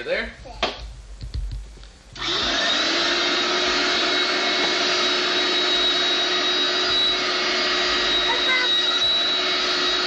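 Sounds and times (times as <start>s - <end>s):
vacuum cleaner running: 2.1s - 10.0s.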